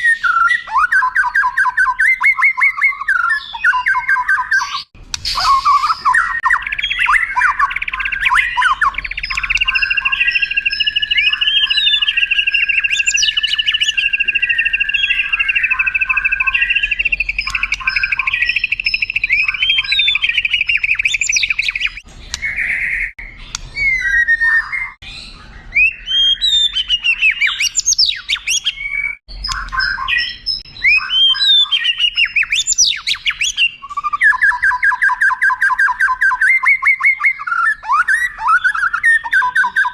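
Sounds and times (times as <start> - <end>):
songbird trilling and whistling: 0.0 - 39.9.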